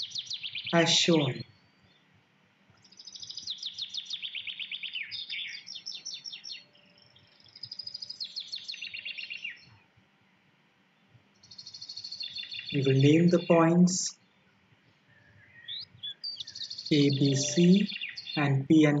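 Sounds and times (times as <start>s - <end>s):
small bird chirping: 0.0s - 2.0s, 2.7s - 9.8s, 11.3s - 14.3s, 15.1s - 19.0s.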